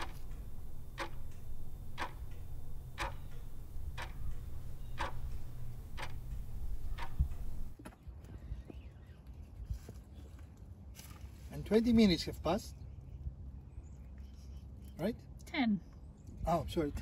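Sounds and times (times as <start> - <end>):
clock ticking: 0.0 - 7.8
low steady rumble: 0.0 - 7.8.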